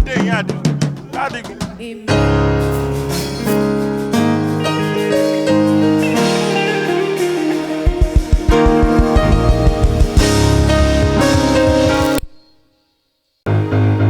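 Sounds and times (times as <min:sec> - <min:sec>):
keyboard playing chords: 0:02.1 - 0:12.3, 0:13.5 - 0:14.0
deep bass: 0:09.2 - 0:12.2.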